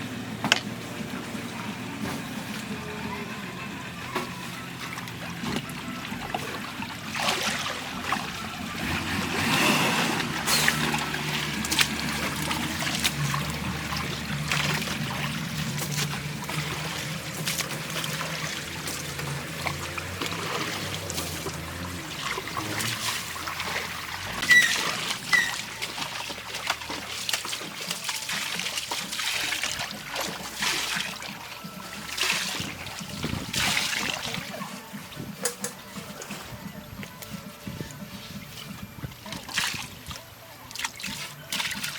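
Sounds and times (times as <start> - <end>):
river water splashing and trickling: 0.0 - 41.9
loud splashes: 4.1 - 34.6.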